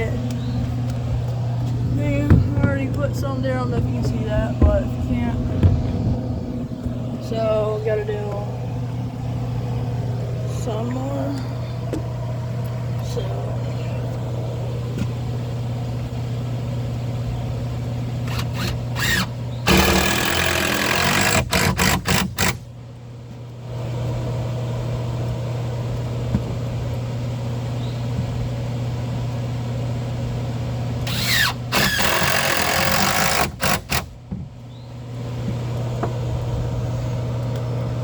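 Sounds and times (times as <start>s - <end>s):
steady low hum: 0.0s - 38.0s
power driver sinking screws into wood: 18.3s - 22.6s, 31.1s - 34.2s.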